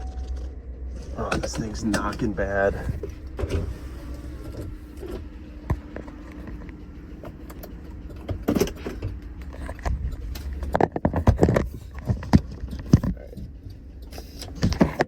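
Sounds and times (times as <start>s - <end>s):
engine knocking clicks: 0.0s - 3.5s, 4.2s - 15.0s
engine drone from inside cabin: 0.0s - 15.0s
person talking: 1.1s - 3.0s.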